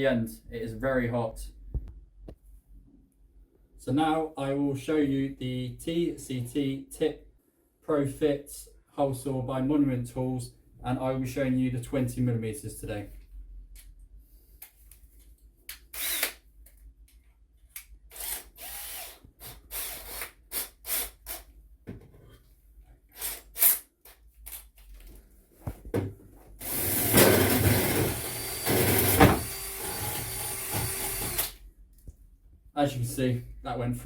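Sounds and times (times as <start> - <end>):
power drill cutting through wood: 16.0 - 16.4, 18.1 - 21.1, 26.6 - 31.6.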